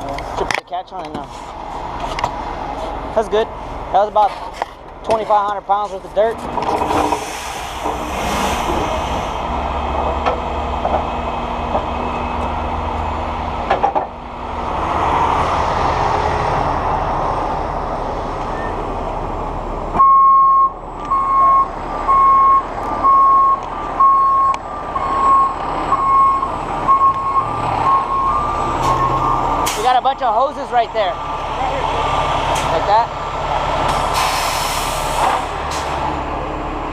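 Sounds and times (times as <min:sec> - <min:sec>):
diesel truck engine running: 0:00.0 - 0:36.9
reversing alarm beeping: 0:20.0 - 0:29.5.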